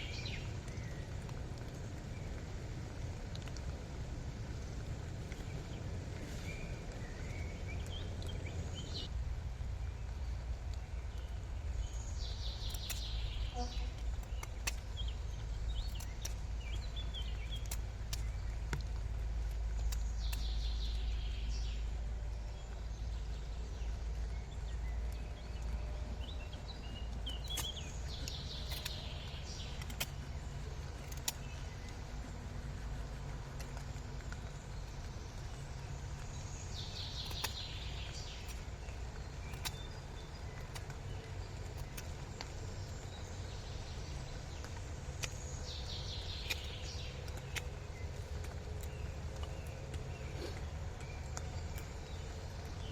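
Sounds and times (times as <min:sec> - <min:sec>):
small clicks: 0:00.2 - 0:03.8, 0:10.6 - 0:52.9
bird calls: 0:11.3 - 0:18.9, 0:24.9 - 0:32.4, 0:33.8 - 0:52.9.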